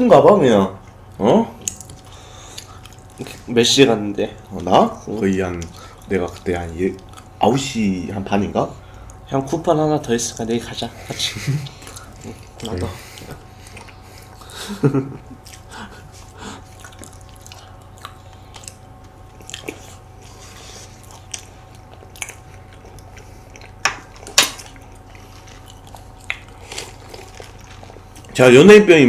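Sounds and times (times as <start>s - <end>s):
soft chewing mouth noises: 0.8s - 3.6s, 4.2s - 7.4s, 10.3s - 14.6s, 15.2s - 28.4s.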